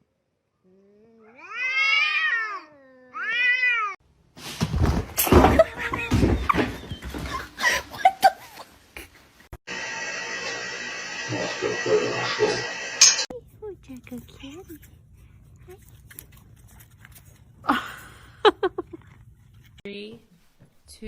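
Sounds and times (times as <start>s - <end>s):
cat meowing: 1.2s - 4.0s
sharp knocks and rustling: 4.4s - 7.6s.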